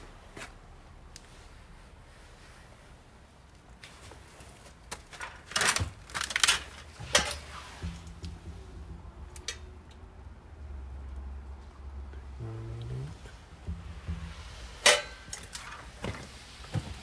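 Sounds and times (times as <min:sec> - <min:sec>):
objects clacking and scraping: 0:05.0 - 0:09.8, 0:13.1 - 0:17.0
low steady hum: 0:06.8 - 0:17.0.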